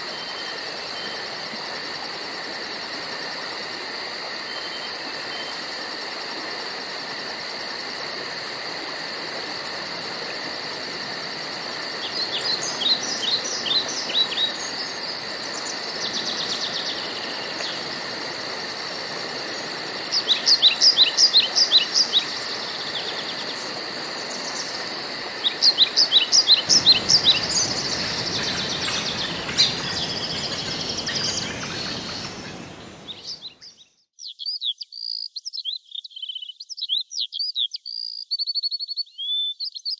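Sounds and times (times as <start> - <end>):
insect trill and buzzing: 0.0 - 33.6
songbird singing: 10.9 - 39.9
bird chirping: 25.5 - 38.2.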